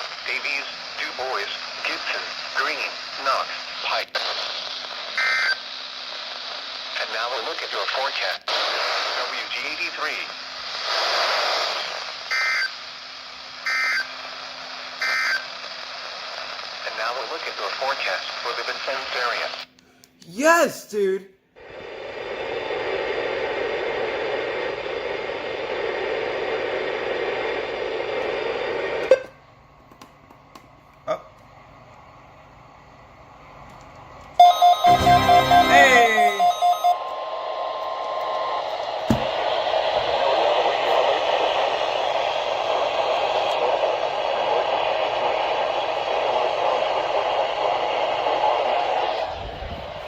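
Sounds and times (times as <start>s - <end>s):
radio static hiss: 0.0s - 12.8s, 15.1s - 19.7s, 40.3s - 49.2s.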